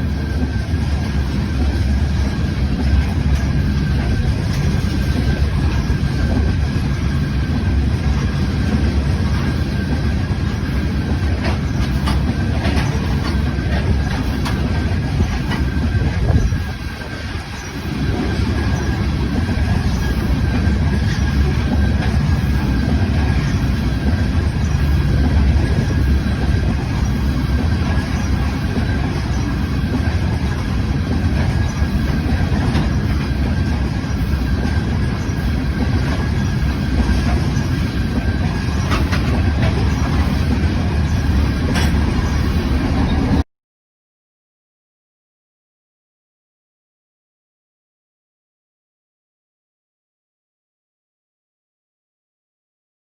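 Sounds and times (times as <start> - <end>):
train cars rumbling past: 0.0 - 43.4
wheel clicks over rail joints: 35.9 - 42.5.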